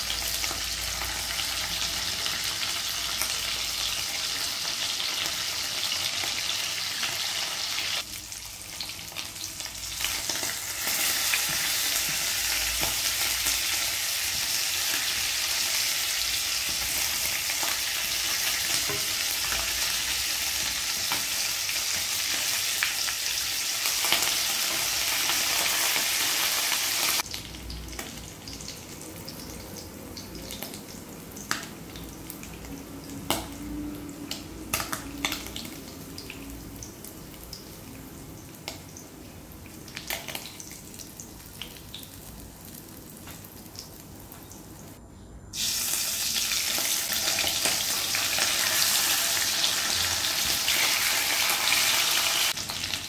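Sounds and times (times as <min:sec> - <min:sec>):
fish sizzling in hot oil: 0:00.0 - 0:29.4, 0:45.6 - 0:53.0.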